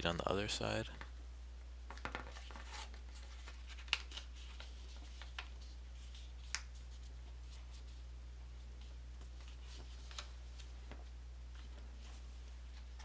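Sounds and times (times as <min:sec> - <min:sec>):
paper rustling: 0:02.0 - 0:08.0, 0:08.8 - 0:13.0
sharp paper crackles: 0:02.3 - 0:07.1.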